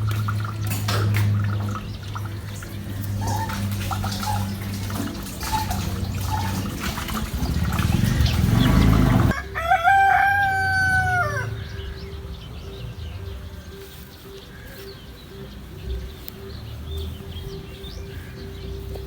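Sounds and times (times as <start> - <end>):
rooster crowing: 9.1 - 11.6.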